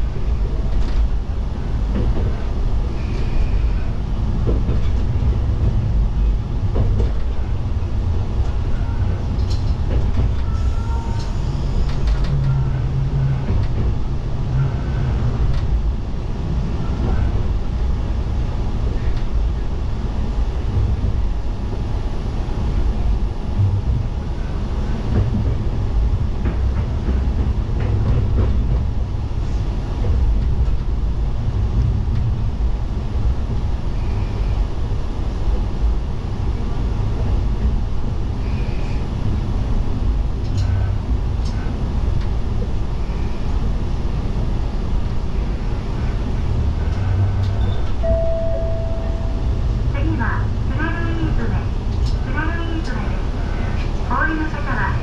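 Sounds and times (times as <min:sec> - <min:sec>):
diesel railcar engine rumble: 0:00.0 - 0:55.0
train wheels on rails: 0:00.0 - 0:55.0.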